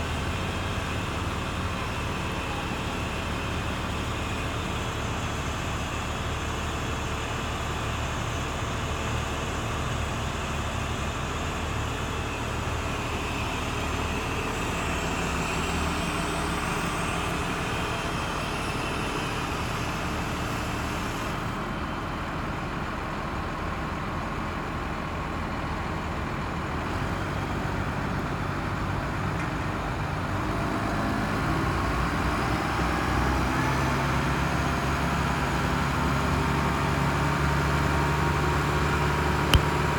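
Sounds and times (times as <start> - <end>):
truck engine running: 33.8 - 39.9.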